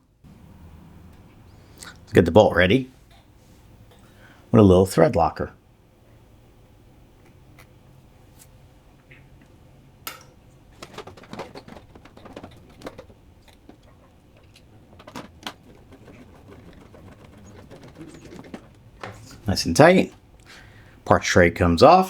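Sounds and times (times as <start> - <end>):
plastic and metal clicks and knocks: 10.1 - 20.4.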